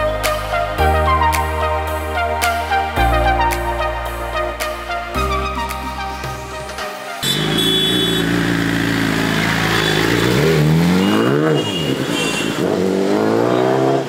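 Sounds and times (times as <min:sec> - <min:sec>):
motorcycle engine accelerating: 0:07.2 - 0:11.7.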